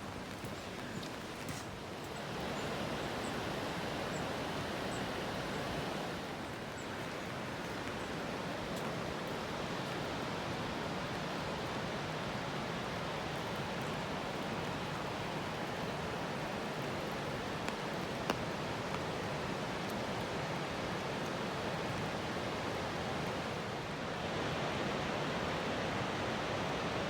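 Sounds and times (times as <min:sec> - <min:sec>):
rushing water: 0:00.0 - 0:27.0.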